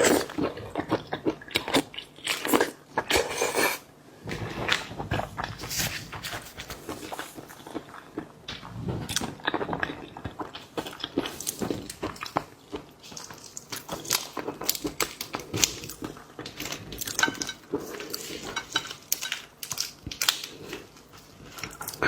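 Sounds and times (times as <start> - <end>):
shellfish shells clicking and crackling: 13.0 - 22.0.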